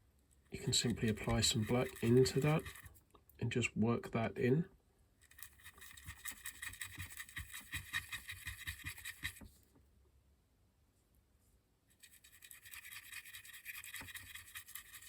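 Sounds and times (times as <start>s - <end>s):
small brush scratching strokes: 0.6s - 3.0s, 5.2s - 9.6s, 11.9s - 15.0s.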